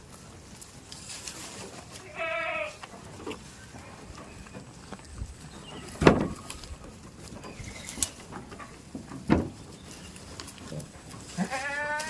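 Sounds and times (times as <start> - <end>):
dull thumps: 5.2 - 7.5, 8.3 - 9.8.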